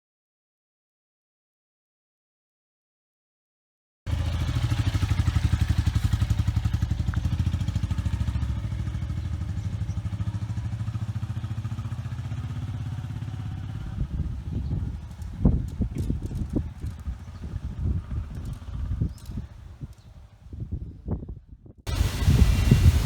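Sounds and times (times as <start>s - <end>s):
engine running steadily: 4.1s - 20.0s, 21.9s - 23.0s.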